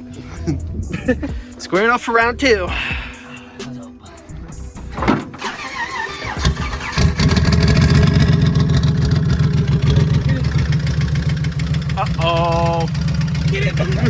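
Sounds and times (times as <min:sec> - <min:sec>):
car engine starting and running: 0:04.4 - 0:14.0.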